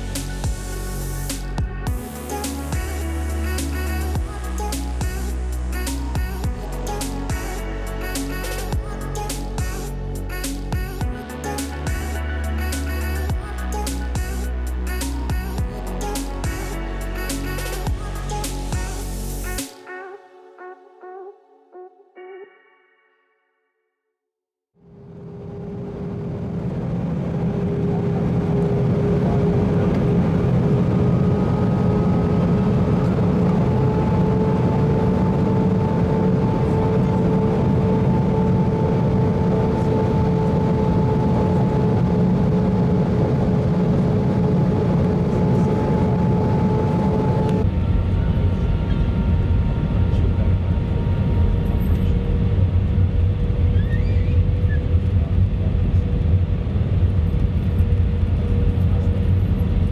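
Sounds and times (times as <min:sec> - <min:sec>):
jet engine rumble in cabin: 0:25.0 - 0:59.9.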